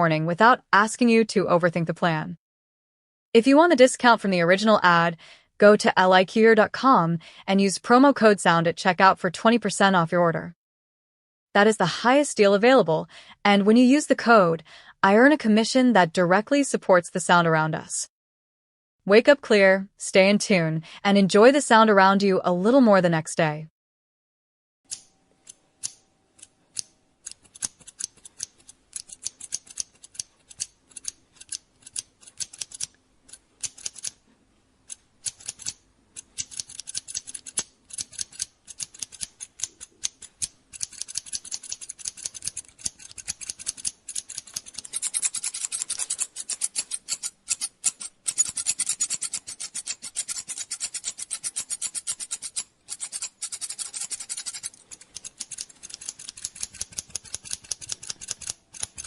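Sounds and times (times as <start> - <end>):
scissors snipping hair: 24.9 - 34.2, 34.9 - 59.0.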